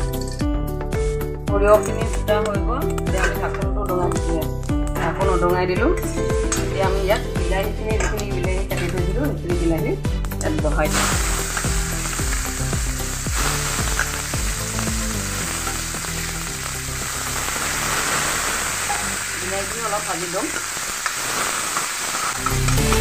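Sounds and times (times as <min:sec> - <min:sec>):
tomato slices sizzling in oil: 0:10.8 - 0:23.0.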